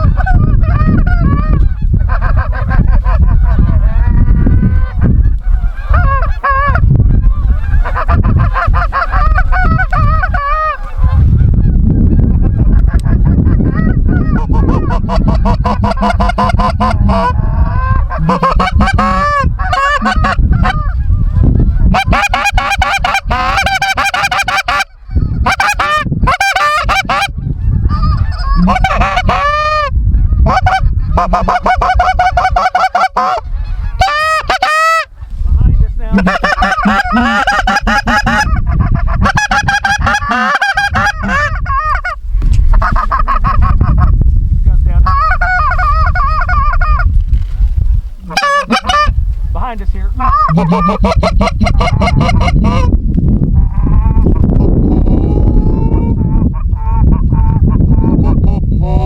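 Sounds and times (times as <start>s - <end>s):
low rumble: 0.0s - 22.2s, 35.1s - 59.0s
geese honking: 0.0s - 44.1s, 45.0s - 47.1s, 48.2s - 49.2s, 50.1s - 53.0s.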